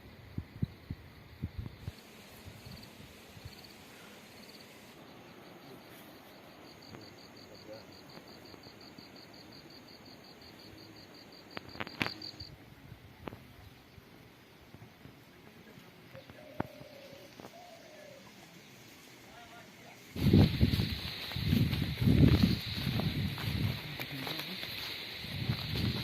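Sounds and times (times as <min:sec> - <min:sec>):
insect trilling: 0:01.8 - 0:12.6, 0:16.1 - 0:26.0.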